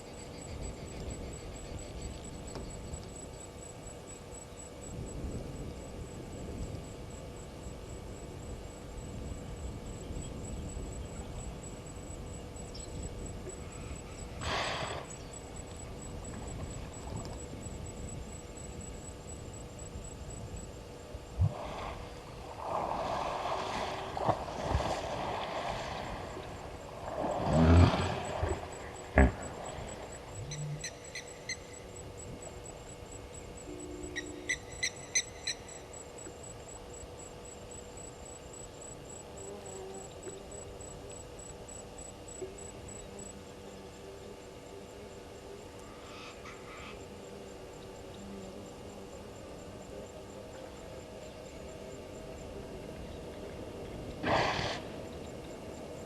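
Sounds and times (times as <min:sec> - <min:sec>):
constant low hum: 0:00.0 - 0:56.0
rustles: 0:21.4 - 0:30.8.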